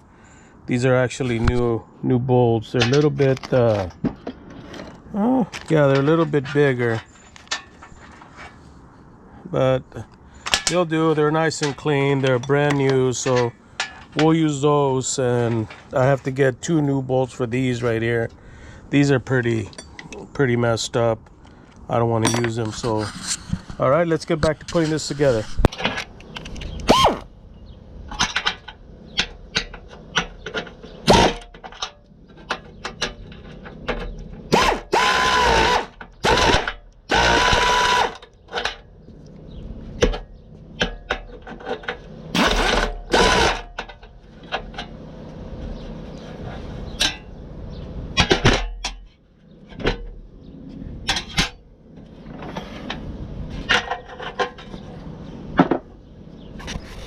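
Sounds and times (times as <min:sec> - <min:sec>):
metal clicks and knocks: 0:02.7 - 0:07.9, 0:28.1 - 0:34.4
power tool whirring: 0:34.5 - 0:38.2, 0:42.4 - 0:43.7.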